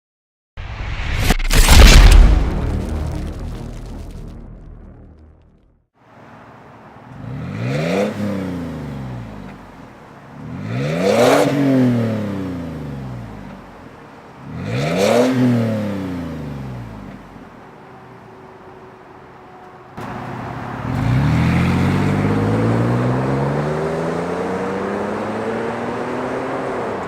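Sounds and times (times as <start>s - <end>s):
car engine revving: 7.1s - 13.6s, 14.4s - 17.2s, 20.0s - 27.0s.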